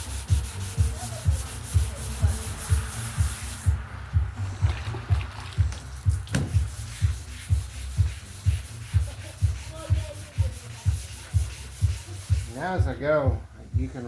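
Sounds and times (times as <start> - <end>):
sandpaper rubbing back and forth: 0.0 - 3.8, 6.4 - 13.0.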